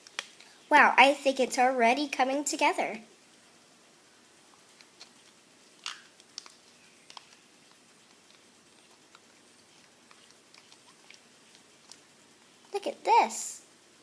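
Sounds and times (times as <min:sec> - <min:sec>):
slime stirred in a bowl: 0:04.6 - 0:12.6
sticky clicks and squelches: 0:04.6 - 0:12.9.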